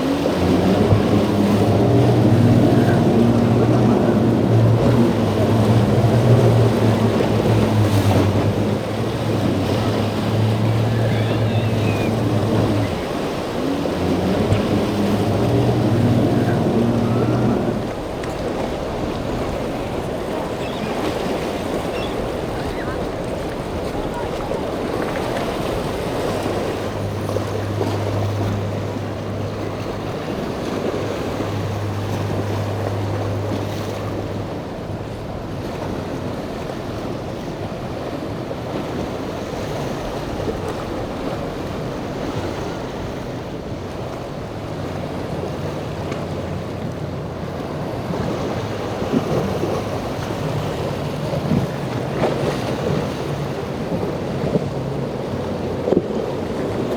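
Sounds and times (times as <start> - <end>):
waves washing: 0.0 - 56.9
wind buffeting microphone: 0.0 - 56.9
steady low motor hum: 0.2 - 34.0.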